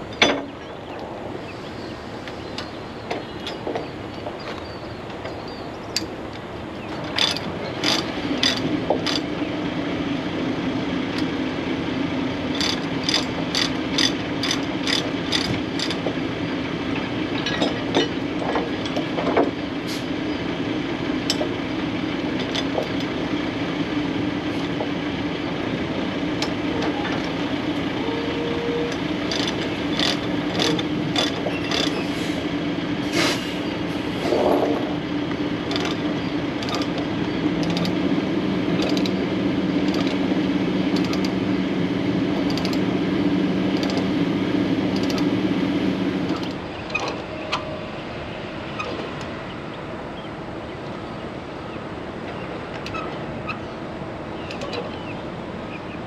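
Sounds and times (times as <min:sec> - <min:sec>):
diesel engine running: 0:00.0 - 0:55.7
metallic clicks and clanks: 0:06.0 - 0:09.3, 0:12.5 - 0:16.2, 0:28.9 - 0:32.0, 0:35.6 - 0:38.0, 0:38.7 - 0:39.2, 0:39.8 - 0:40.3, 0:40.9 - 0:41.4, 0:42.4 - 0:42.9, 0:43.7 - 0:44.1, 0:44.9 - 0:45.3.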